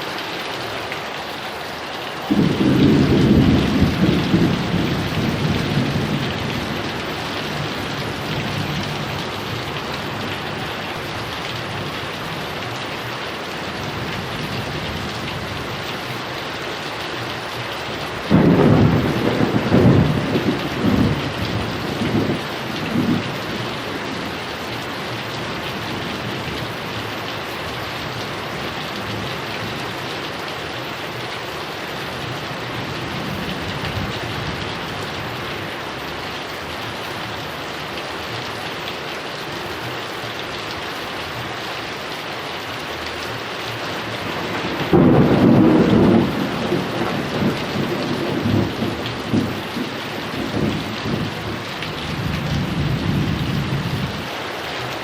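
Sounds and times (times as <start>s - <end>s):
heavy rain falling: 0.0s - 55.0s
thunder rumbling: 2.3s - 12.4s, 18.1s - 27.3s, 44.0s - 54.3s.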